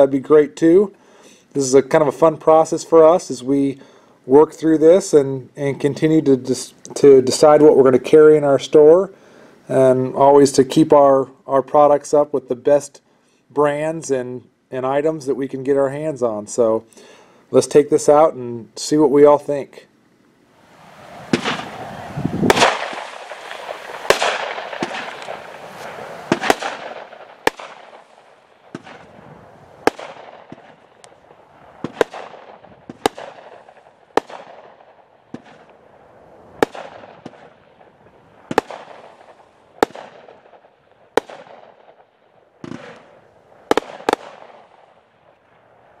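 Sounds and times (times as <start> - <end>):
firework rushing launch: 20.6 - 35.7
firework bangs: 20.6 - 35.8, 36.5 - 42.0, 42.6 - 45.0
fizzing firework tails: 20.7 - 29.2.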